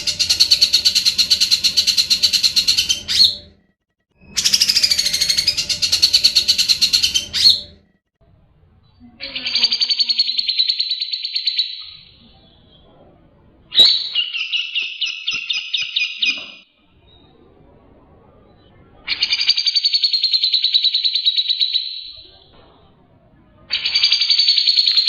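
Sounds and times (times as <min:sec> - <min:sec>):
bulbul singing chattering phrases: 0:00.0 - 0:03.5, 0:04.3 - 0:07.8, 0:09.1 - 0:12.8.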